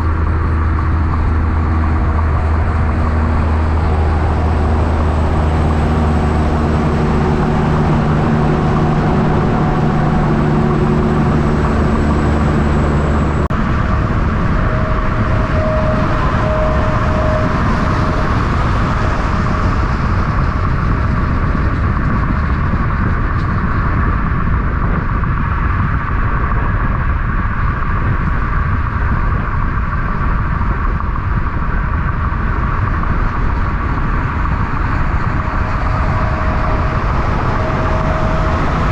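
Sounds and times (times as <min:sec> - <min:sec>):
truck engine humming: 0:00.0 - 0:23.8, 0:31.6 - 0:38.9
road traffic roar: 0:00.0 - 0:38.9.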